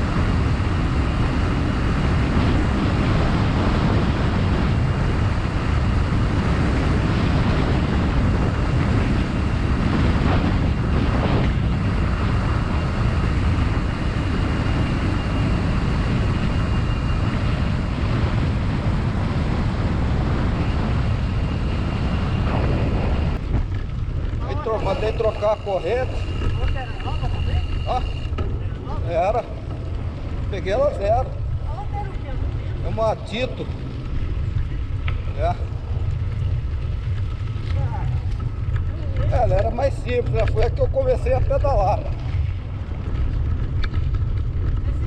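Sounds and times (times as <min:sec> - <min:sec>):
bike tyre noise: 0:00.0 - 0:45.0
wind on microphone: 0:00.0 - 0:45.0.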